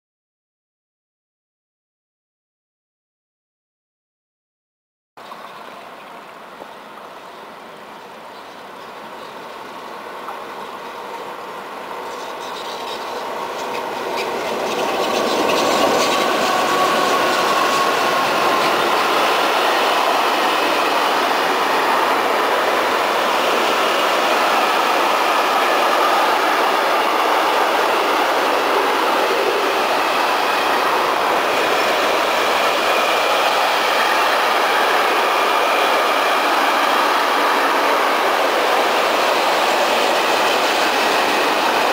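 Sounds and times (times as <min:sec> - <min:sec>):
train passing on rails: 0:05.2 - 0:41.9
clickety-clack over rail joints: 0:07.8 - 0:35.0
wheel squeal: 0:12.0 - 0:21.2.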